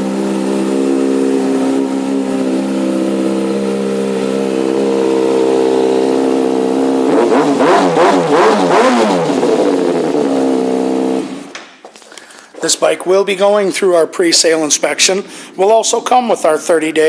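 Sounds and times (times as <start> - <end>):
motorcycle engine idling and revving: 0.0 - 11.6.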